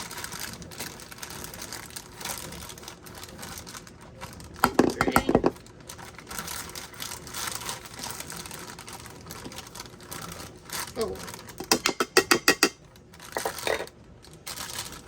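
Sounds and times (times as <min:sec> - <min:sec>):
plastic bag crinkling: 0:00.0 - 0:11.8, 0:12.8 - 0:15.0
sharp knocks and rattles: 0:04.6 - 0:05.6, 0:11.6 - 0:12.8.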